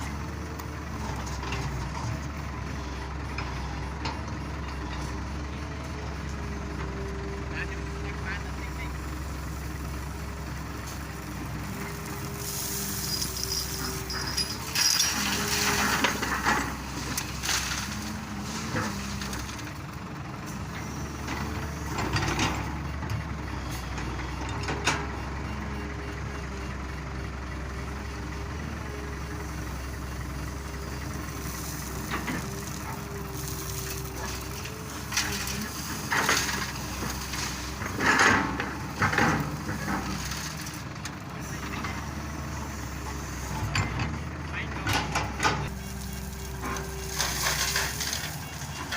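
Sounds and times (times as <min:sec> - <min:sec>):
excavator diesel engine: 0:00.0 - 0:48.9
rocks crashing into truck bed: 0:14.3 - 0:19.7.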